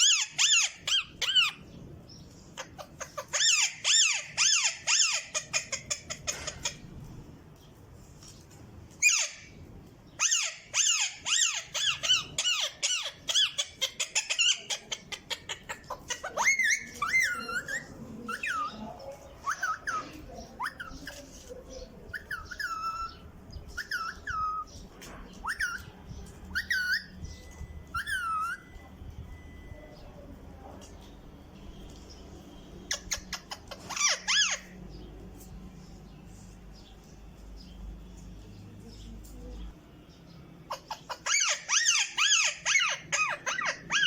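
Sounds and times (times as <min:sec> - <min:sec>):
parrot whistled squeaks: 0:00.0 - 0:01.7, 0:02.6 - 0:06.8, 0:09.0 - 0:09.6, 0:10.2 - 0:14.9, 0:15.7 - 0:21.2, 0:22.1 - 0:30.1, 0:32.9 - 0:34.8, 0:40.7 - 0:44.0
parrot chattering and clicking: 0:02.4 - 0:07.3, 0:08.2 - 0:28.8, 0:32.9 - 0:34.8, 0:40.7 - 0:44.0.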